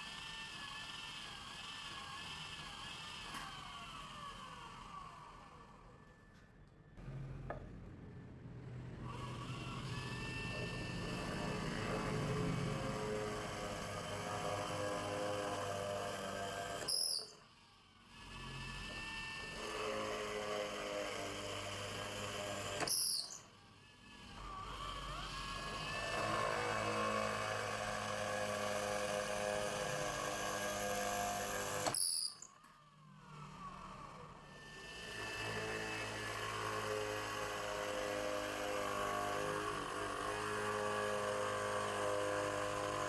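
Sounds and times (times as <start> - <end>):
electric motor whining: 0.0 - 5.8, 9.0 - 43.0.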